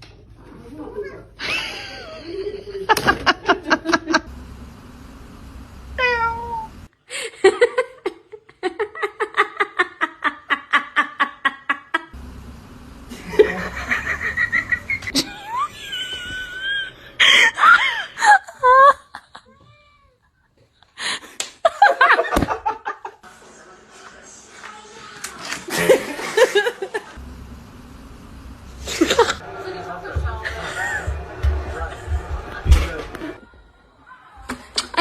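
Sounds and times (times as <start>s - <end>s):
person laughing: 1.4s - 4.3s, 13.1s - 19.6s, 28.8s - 29.4s
cat meowing and yowling: 6.0s - 6.7s.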